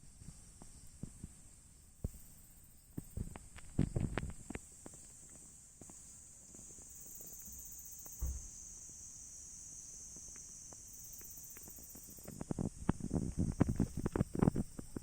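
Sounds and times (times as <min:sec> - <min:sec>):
insects trilling: 0:00.2 - 0:15.0
sharp knocks and crackles: 0:03.0 - 0:08.5
soft low thump: 0:08.1 - 0:08.6.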